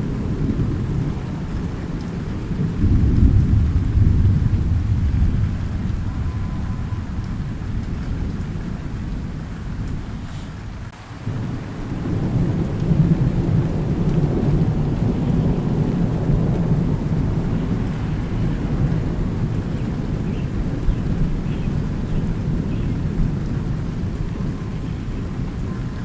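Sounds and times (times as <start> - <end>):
steady rain: 0.0 - 26.0
thunder rumbling: 0.0 - 26.0.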